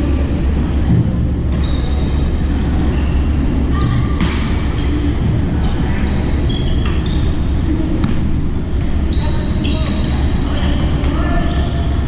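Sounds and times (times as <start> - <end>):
shoes squeaking on court floor: 1.5 - 2.3, 5.7 - 12.0.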